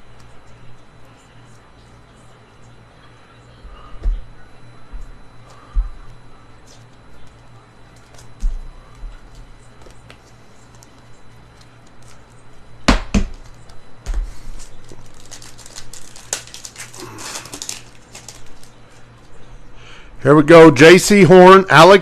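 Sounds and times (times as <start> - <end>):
plastic wrapper crinkling and tearing: 14.7 - 19.0
packaging clicks: 14.8 - 18.7.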